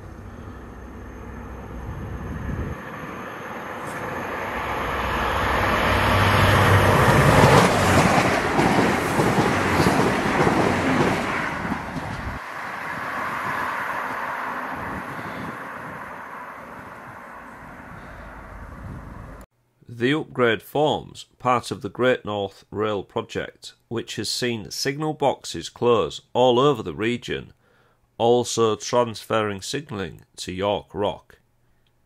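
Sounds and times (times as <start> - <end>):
train passing at speed: 0.0 - 19.4.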